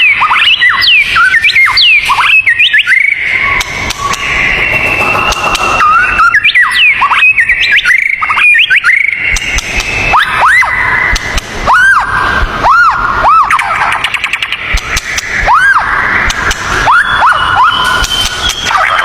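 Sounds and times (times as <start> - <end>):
steady high tone: 0.0 - 14.7
songbirds whistling: 0.0 - 19.0.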